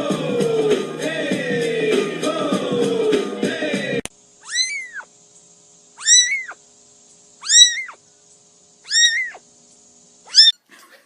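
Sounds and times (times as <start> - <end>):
cat meowing: 4.4 - 5.1, 6.0 - 6.6, 7.4 - 8.0, 8.9 - 9.4, 10.3 - 10.6.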